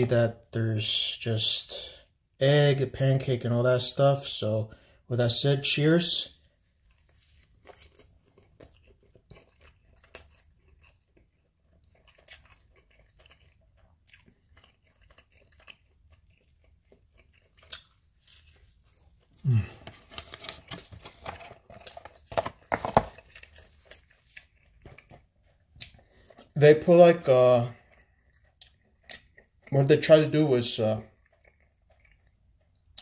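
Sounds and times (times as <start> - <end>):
person chewing food: 6.4 - 29.9, 30.8 - 33.0.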